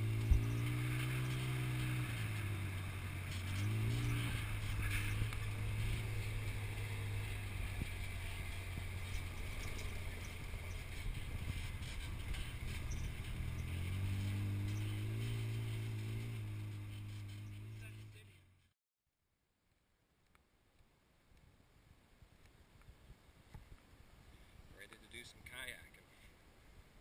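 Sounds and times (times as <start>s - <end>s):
off-road vehicle engine revving: 0.0s - 18.7s
ride noise on dirt trail: 0.0s - 18.7s, 19.7s - 27.0s.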